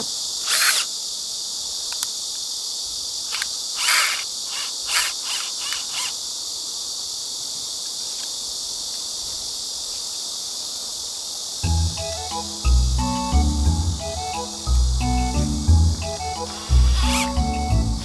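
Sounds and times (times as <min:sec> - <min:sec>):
short hissing strokes: 0:00.0 - 0:11.6, 0:16.0 - 0:18.0
insects chorus: 0:00.0 - 0:18.0.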